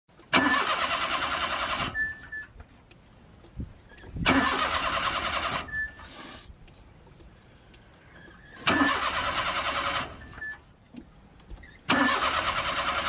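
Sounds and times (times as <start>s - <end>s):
starter motor cranking engine: 0.2s - 2.5s, 3.9s - 6.4s, 8.1s - 10.6s, 11.6s - 13.0s.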